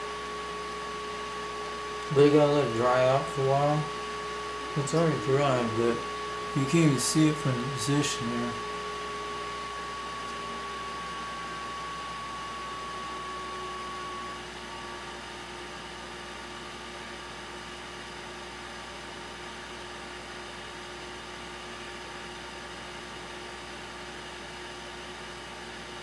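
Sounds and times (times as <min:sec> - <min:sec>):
small motor humming: 0:00.0 - 0:16.2.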